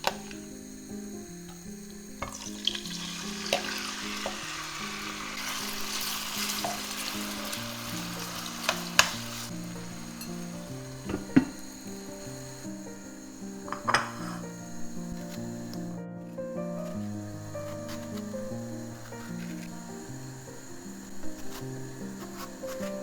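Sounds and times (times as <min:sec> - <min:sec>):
food sizzling in a frying pan: 0:01.6 - 0:15.1.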